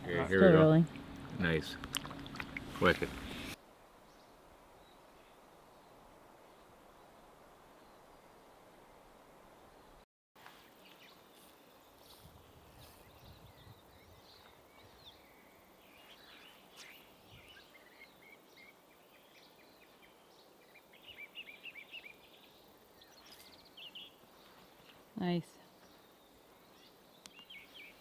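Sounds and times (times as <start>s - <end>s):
faint bird chirps: 10.8s - 28.0s.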